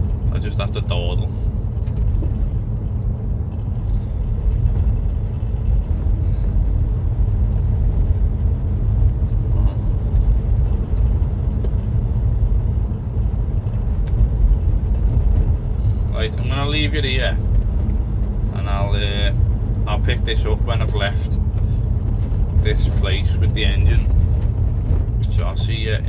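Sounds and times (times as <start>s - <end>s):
tyre road noise: 0.0s - 26.0s
van engine rumble: 0.0s - 26.0s.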